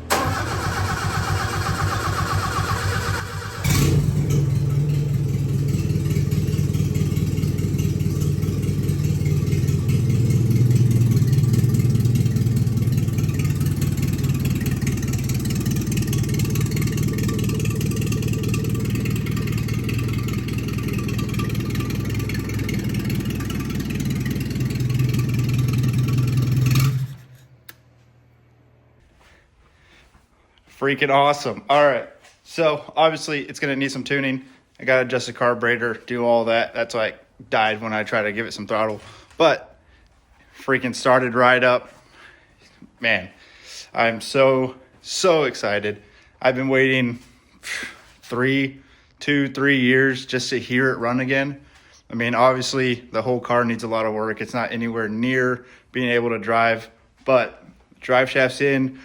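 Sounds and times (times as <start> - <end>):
engine starter cranking: 0.0 - 27.8.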